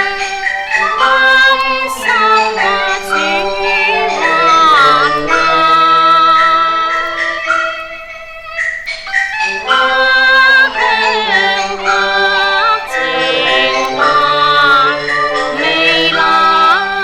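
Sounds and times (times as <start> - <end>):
held accompanying notes: 0.0 - 17.0
opera singing with vibrato: 0.0 - 17.0.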